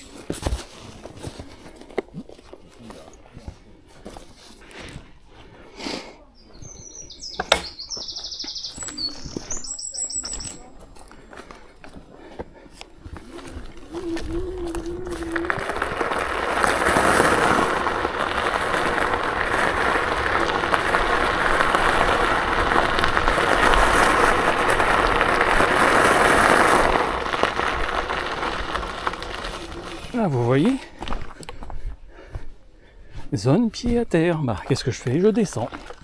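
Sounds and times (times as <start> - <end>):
tyre rolling noise: 6.6 - 34.2
wind on camera: 13.1 - 32.0.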